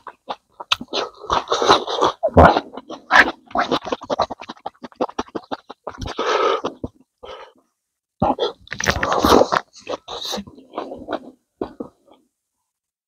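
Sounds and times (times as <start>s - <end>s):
wet chewing and lip-smacking: 0.0s - 7.0s.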